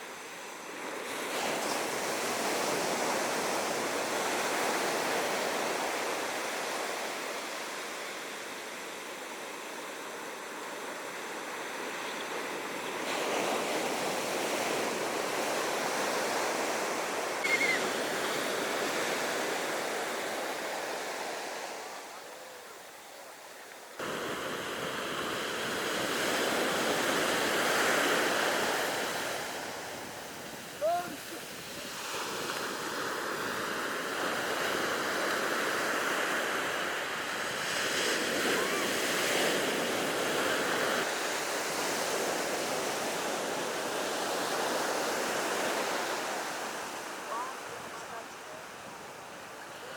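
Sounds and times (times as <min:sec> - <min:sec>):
ocean surf washing onto beach: 0:00.0 - 0:49.9
brief high-pitched calls: 0:17.4 - 0:18.0.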